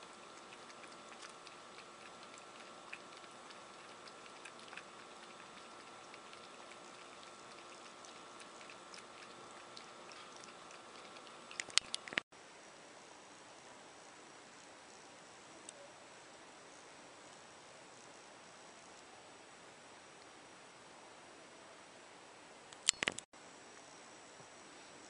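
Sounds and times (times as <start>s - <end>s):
ferret claws clicking: 8.7s - 12.2s.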